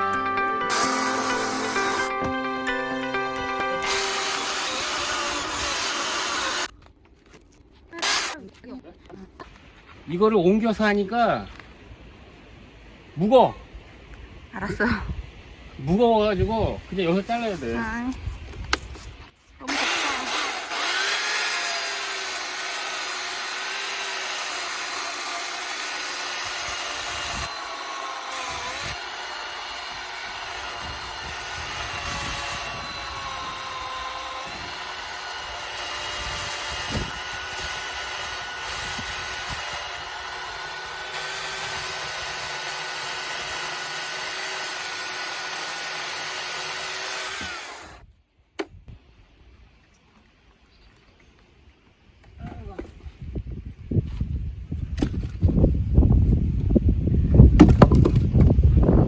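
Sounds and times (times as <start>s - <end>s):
chainsaw cutting log: 0.7s - 2.4s, 3.8s - 6.8s, 8.0s - 8.4s, 19.6s - 48.0s.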